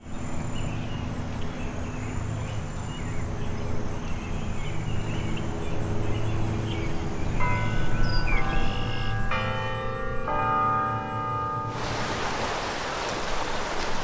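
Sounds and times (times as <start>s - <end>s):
birds chirping: 11.7s - 14.0s.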